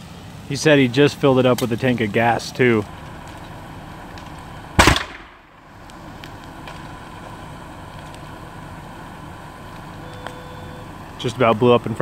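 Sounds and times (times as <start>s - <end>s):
explosion bang: 4.8s - 5.6s.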